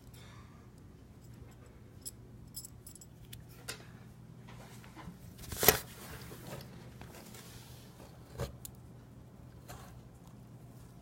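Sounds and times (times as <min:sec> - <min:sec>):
keychain clicks and rattles: 0:02.0 - 0:03.2.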